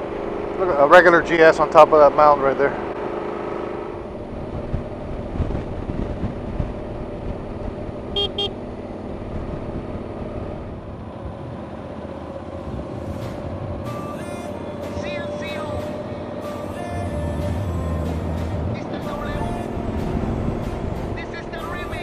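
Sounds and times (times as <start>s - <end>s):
motorcycle engine running: 0.0s - 22.0s
road rumble: 0.0s - 22.0s
wind: 0.0s - 22.0s
short high-pitched beeps: 8.2s - 8.5s.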